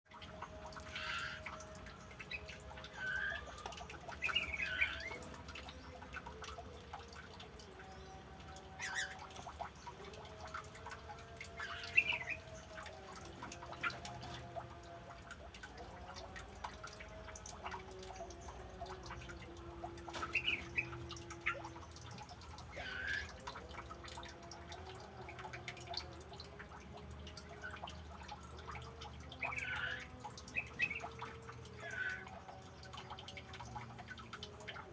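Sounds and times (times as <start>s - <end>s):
faint dripping water ticking: 0.1s - 34.9s
songbirds chirping: 0.1s - 34.9s
birds chirping: 0.3s - 14.6s.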